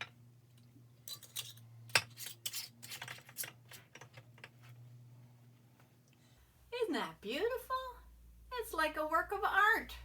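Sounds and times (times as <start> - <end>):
lids twisted onto glass jars: 1.1 - 4.2.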